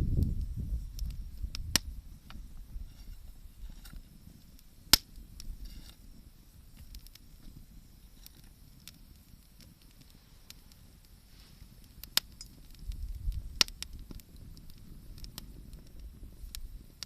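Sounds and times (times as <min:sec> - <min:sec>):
bonfire crackling: 0:00.0 - 0:17.0
sharp pops: 0:04.9 - 0:06.0.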